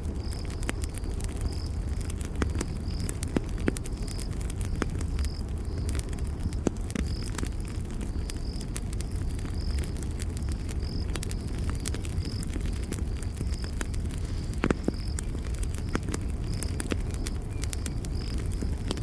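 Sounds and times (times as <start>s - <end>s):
campfire crackling and popping: 0.0s - 19.0s
cricket chirping: 0.1s - 19.0s.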